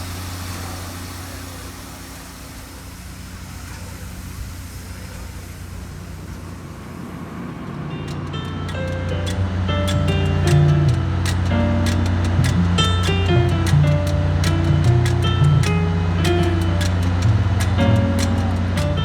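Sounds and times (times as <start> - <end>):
low mechanical hum with hiss: 0.0 - 19.0
music: 8.0 - 19.0.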